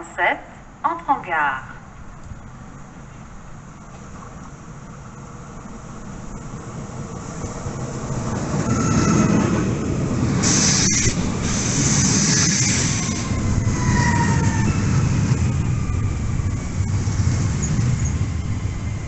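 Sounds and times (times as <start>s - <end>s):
faint train whines: 1.8s - 19.0s
train rumble: 1.8s - 19.0s
air hiss: 10.4s - 13.2s.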